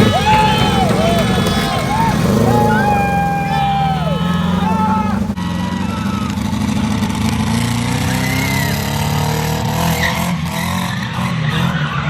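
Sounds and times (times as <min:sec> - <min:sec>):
car engine running: 0:00.0 - 0:05.4.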